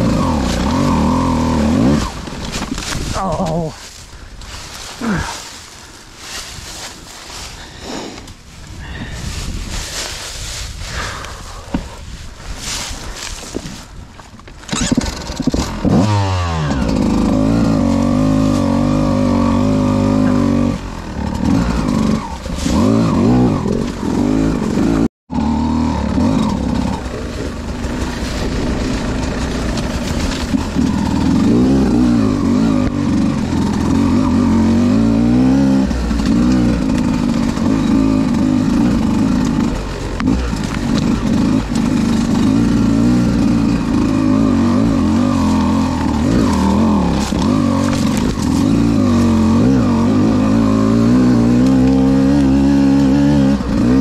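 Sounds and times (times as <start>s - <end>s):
dirt bike engine revving: 0.0s - 3.8s, 14.6s - 54.0s.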